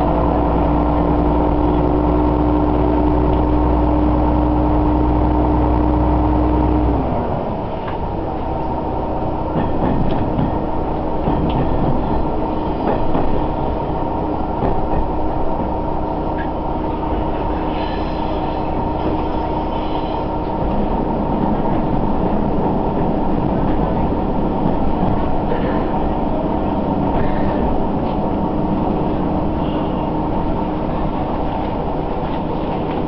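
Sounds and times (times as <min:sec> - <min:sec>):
train engine and wheels rumbling: 0:00.0 - 0:33.0.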